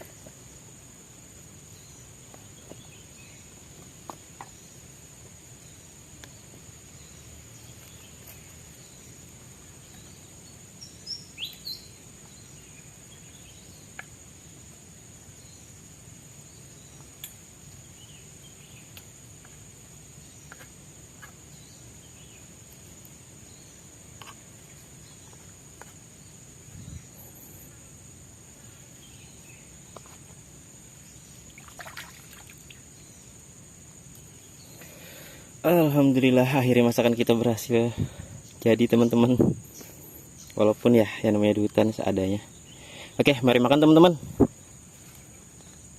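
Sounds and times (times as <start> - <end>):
high insect drone: 0.0 - 45.9
bird-like chirps and clicks: 11.0 - 11.8, 18.8 - 19.6.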